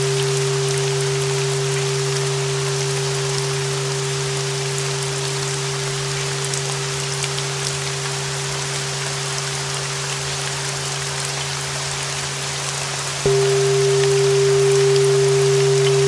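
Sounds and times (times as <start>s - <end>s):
sustained bell tone: 0.0s - 9.1s, 13.3s - 16.0s
steady rain: 0.0s - 16.0s
bell struck: 13.3s - 16.0s
low drone: 13.3s - 16.0s.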